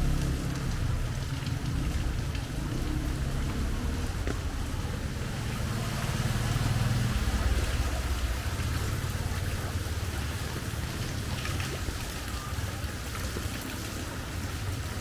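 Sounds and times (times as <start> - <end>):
vehicle passing close by: 0.0 - 9.6
rain hissing on wet street: 0.0 - 15.0
traffic rumble: 0.0 - 15.0.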